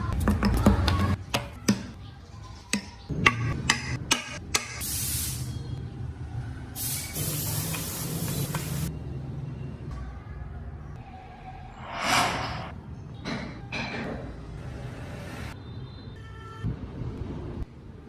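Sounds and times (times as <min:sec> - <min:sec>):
compressed air hissing: 0:06.8 - 0:08.9.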